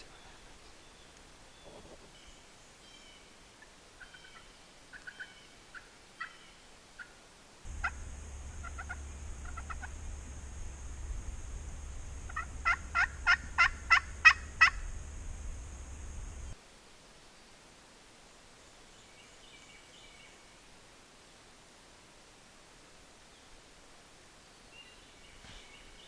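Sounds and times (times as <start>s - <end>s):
wild turkey calling: 4.0s - 16.6s
low hum and hiss: 7.4s - 26.0s.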